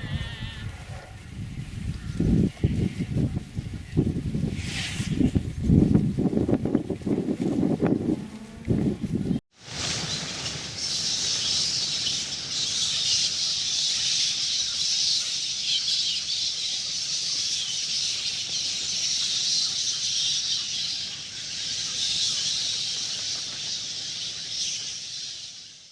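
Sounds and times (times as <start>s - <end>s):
chorus of high-pitched animal calls: 0.0s - 0.9s, 10.8s - 25.6s.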